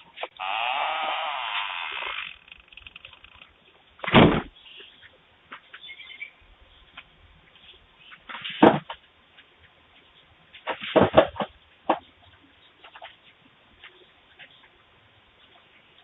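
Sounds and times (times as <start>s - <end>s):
loud thump: 4.0s - 4.5s.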